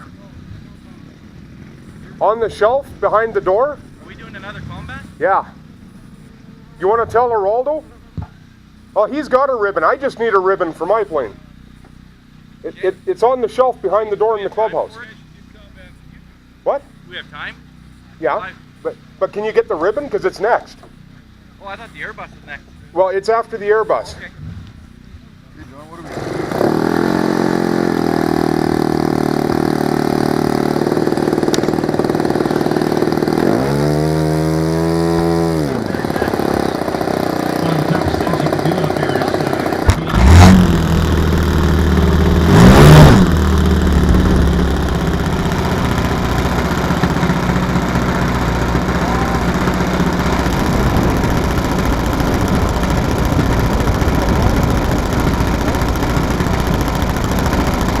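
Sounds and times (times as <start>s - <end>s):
model airplane engine: 16.9s - 58.0s.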